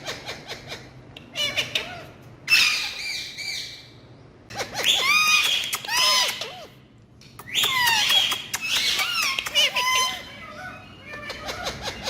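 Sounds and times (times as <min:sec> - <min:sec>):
parrot warbling screeches: 0:01.3 - 0:03.9, 0:04.6 - 0:06.8, 0:07.6 - 0:12.0.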